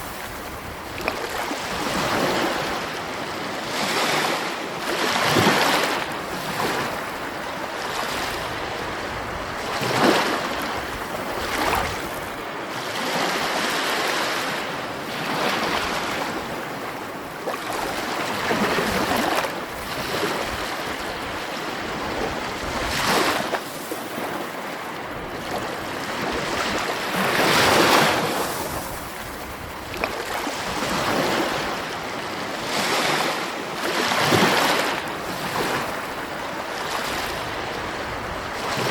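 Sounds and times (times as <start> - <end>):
sea waves breaking: 0.0 - 38.9.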